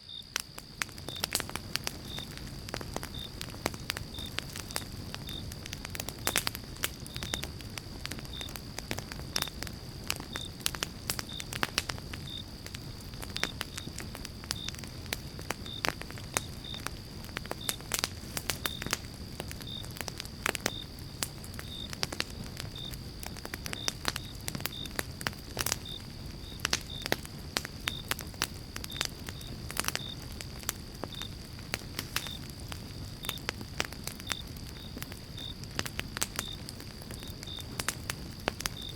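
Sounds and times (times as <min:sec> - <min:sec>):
low rumble of flames: 0:00.0 - 0:38.9
campfire crackling and popping: 0:00.1 - 0:38.9.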